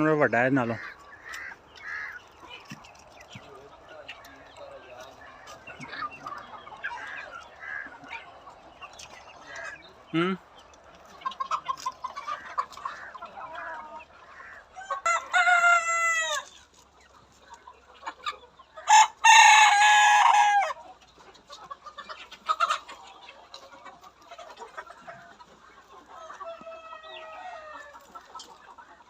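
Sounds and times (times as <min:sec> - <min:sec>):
hens clucking: 0:00.0 - 0:29.0
roosters crowing: 0:00.6 - 0:03.5, 0:04.1 - 0:10.1, 0:11.4 - 0:16.7, 0:18.7 - 0:21.0, 0:26.0 - 0:28.5.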